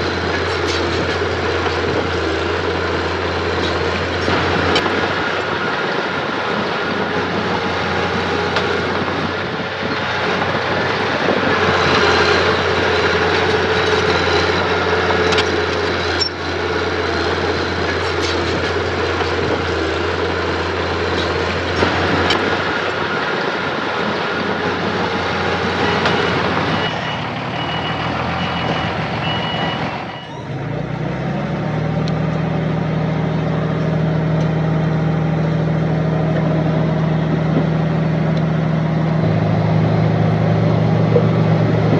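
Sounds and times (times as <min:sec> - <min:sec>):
heavy diesel machinery running: 0:00.0 - 0:41.9
reversing alarm beeping: 0:25.7 - 0:30.5.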